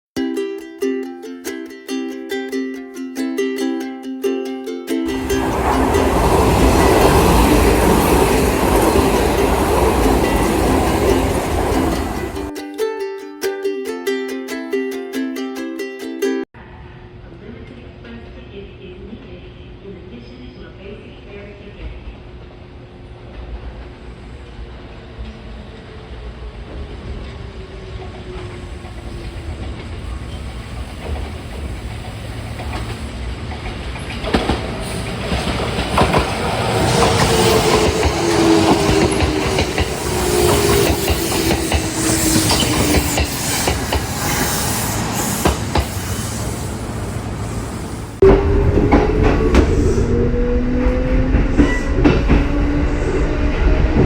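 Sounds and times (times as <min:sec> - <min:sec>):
electric train motor tone: 0:05.1 - 0:12.5, 0:27.7 - 0:54.0
wheels clacking over rail joints: 0:05.1 - 0:12.5, 0:28.0 - 0:49.8.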